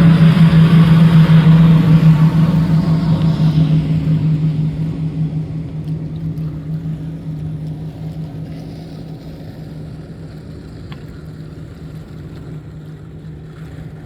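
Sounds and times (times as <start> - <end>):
motorboat engine humming: 0.0 - 14.0
wind: 0.0 - 14.0.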